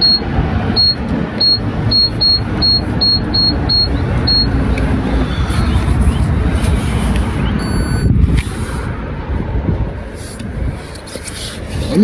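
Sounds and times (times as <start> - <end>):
short electronic beeps: 0.0 - 6.3, 7.4 - 8.2.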